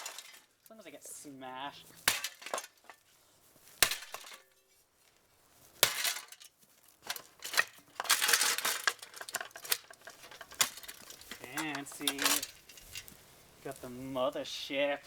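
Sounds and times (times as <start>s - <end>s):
glass and metal clinking and breaking: 0.0s - 0.6s, 2.1s - 3.0s, 5.8s - 6.5s, 7.1s - 12.8s
debris rattling: 0.0s - 3.1s, 5.8s - 13.2s.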